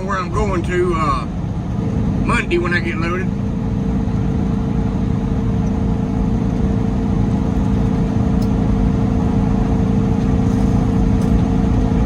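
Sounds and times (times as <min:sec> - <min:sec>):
road noise inside cab: 0:00.0 - 0:12.0
truck diesel engine drone: 0:00.0 - 0:12.0.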